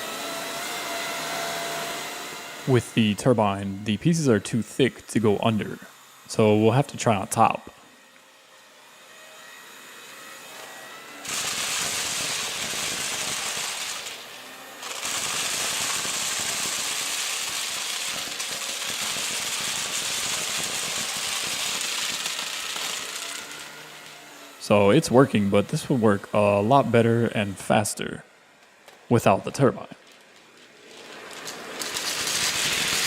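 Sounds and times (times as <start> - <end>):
vacuum cleaner sucking debris: 0.0 - 8.3, 9.1 - 27.9, 29.2 - 33.0
debris rattling up vacuum: 11.2 - 24.2, 30.0 - 33.0.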